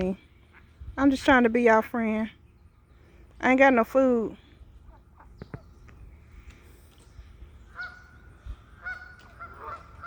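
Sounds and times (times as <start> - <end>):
waterfowl calling: 7.5 - 10.0.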